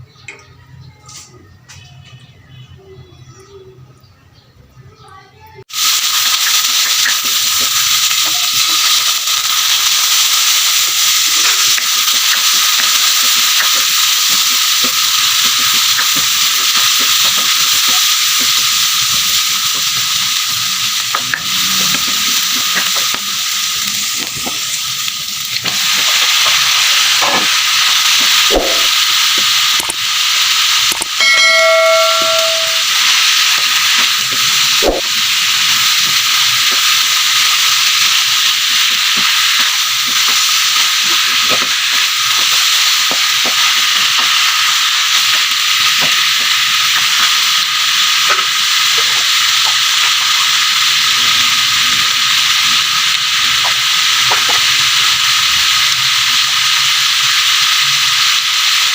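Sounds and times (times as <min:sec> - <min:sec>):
food sizzling in a hot pan: 0:04.8 - 0:58.9
short pitched tone: 0:31.2 - 0:33.0.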